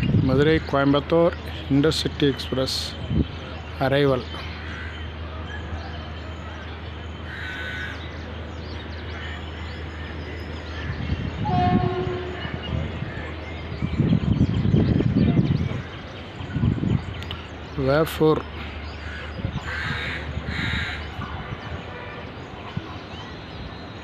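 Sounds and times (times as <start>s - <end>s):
train rumble: 0.0s - 24.0s
train horn: 11.4s - 12.7s.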